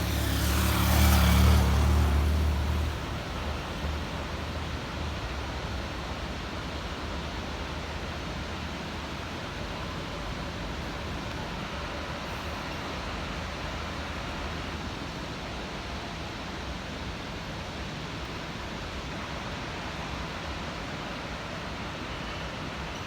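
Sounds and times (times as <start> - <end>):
waterfall rushing: 0.0 - 5.4.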